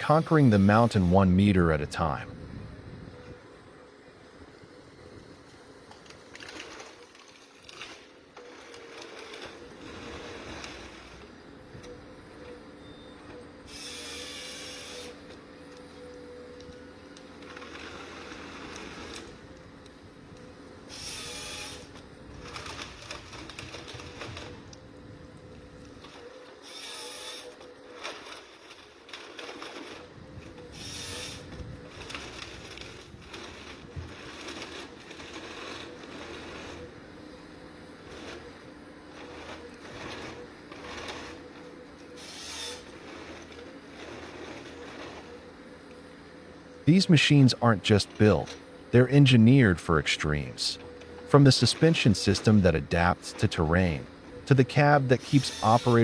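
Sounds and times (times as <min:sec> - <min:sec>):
diesel engine whining: 0:00.0 - 0:56.0
machine clatter and clicking: 0:21.8 - 0:24.8, 0:25.5 - 0:36.9.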